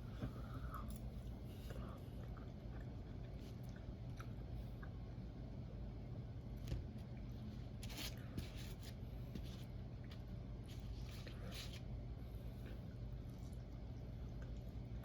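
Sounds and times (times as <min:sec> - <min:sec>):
chewing and mouth clicks: 0:02.2 - 0:05.0.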